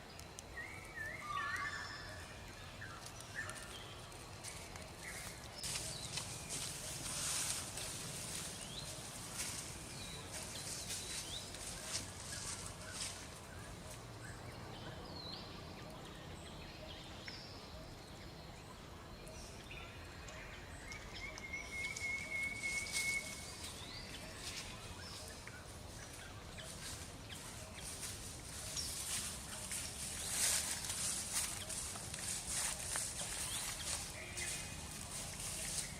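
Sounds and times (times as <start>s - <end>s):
small birds chirping: 0.0s - 35.9s.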